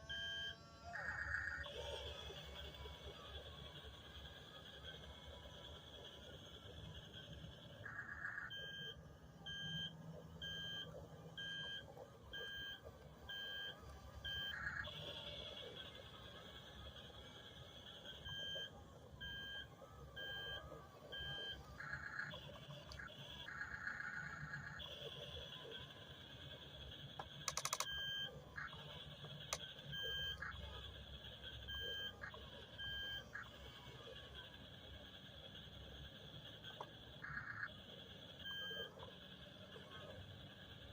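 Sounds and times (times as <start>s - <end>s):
steady high electronic hum: 0.0s - 40.9s
short electronic beeps: 0.1s - 2.3s, 5.5s - 15.9s, 18.0s - 34.3s, 36.6s - 37.8s, 38.4s - 39.2s
rattle of clicks: 27.2s - 27.9s.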